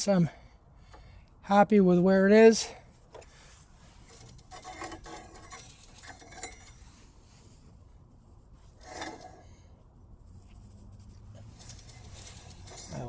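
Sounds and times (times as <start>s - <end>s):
metallic clinks and scrapes: 3.1s - 7.7s, 8.6s - 9.7s, 10.3s - 13.0s.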